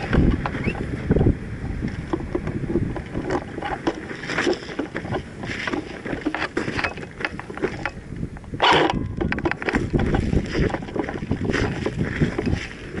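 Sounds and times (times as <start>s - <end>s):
wind rumble on microphone: 0.0s - 13.0s
knocks and clicks: 8.6s - 12.6s.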